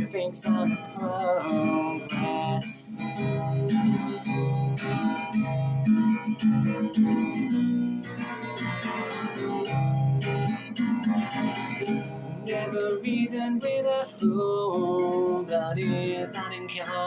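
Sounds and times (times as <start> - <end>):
person singing: 0.0 - 5.6, 11.7 - 17.0
guitar strumming chords: 0.0 - 17.0.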